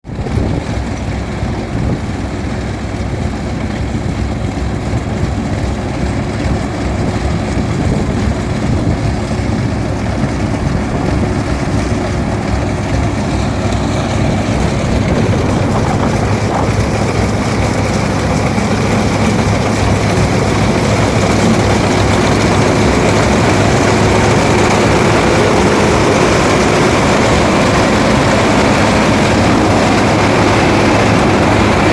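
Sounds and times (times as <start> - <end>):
harvester engine running under load: 0.0 - 31.9.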